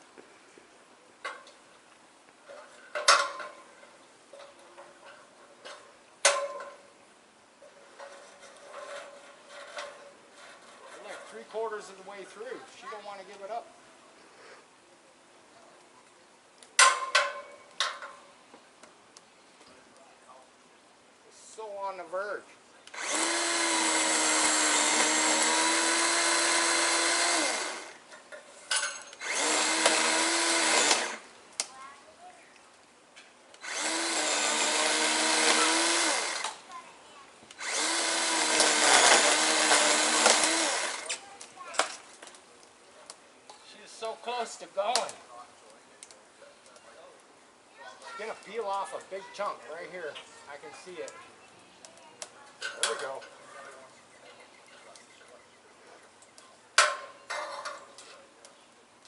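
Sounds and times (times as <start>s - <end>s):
power saw cutting wood: 22.9s - 28.0s, 29.0s - 31.3s, 33.6s - 36.7s, 37.5s - 41.2s
metal hardware clinking: 28.3s - 29.2s.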